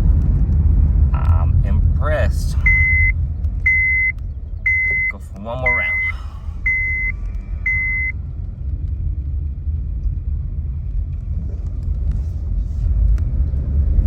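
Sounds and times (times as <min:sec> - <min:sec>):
car road and engine rumble: 0:00.0 - 0:14.0
short high electronic beep: 0:02.7 - 0:03.1, 0:03.7 - 0:04.1, 0:04.7 - 0:06.1, 0:06.7 - 0:07.1, 0:07.7 - 0:08.1.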